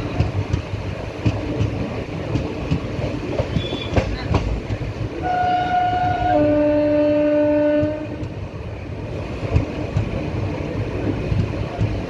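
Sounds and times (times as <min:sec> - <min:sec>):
train rumble and wheel clatter: 0:00.0 - 0:12.0
train horn blast: 0:05.2 - 0:08.3.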